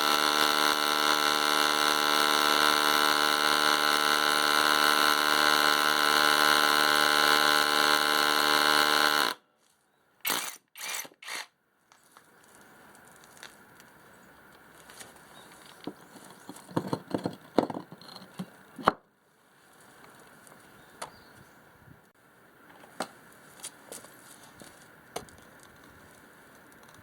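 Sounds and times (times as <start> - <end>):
cordless hammer drill running: 0.0 - 9.4, 10.3 - 11.5.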